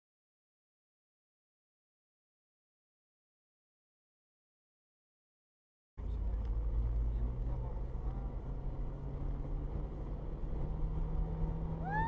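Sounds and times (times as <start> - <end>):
car engine and road noise: 6.0 - 12.0.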